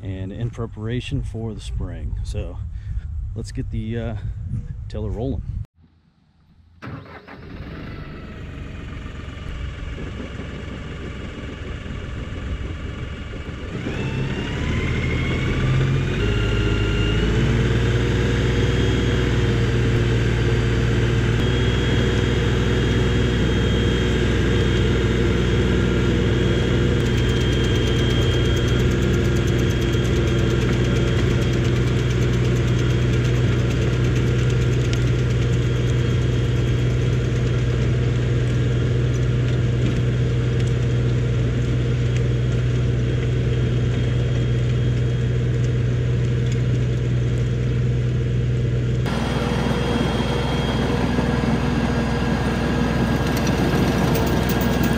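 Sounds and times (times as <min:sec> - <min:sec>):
tractor diesel engine revving: 0:06.8 - 0:39.9, 0:49.0 - 0:54.9.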